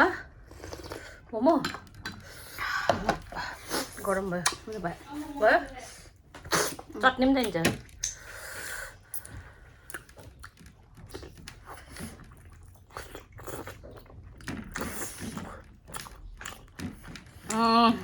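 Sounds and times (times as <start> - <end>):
slurping: 0.1 - 7.1, 8.0 - 18.0
person chewing: 0.4 - 2.5, 8.0 - 18.0.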